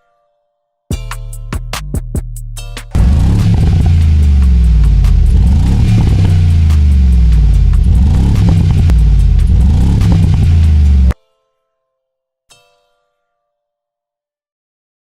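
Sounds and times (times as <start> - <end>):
synthetic engine note revving: 3.0 - 11.2.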